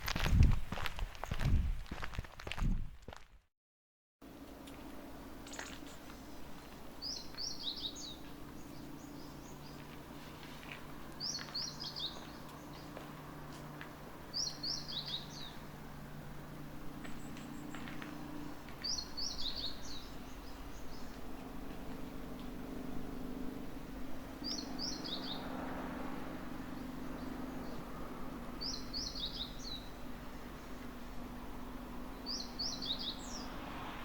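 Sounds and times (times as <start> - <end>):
faint forest background: 0.0 - 3.4, 4.2 - 34.0
songbird singing: 4.6 - 13.6, 14.2 - 15.9, 17.0 - 22.6, 24.2 - 33.7.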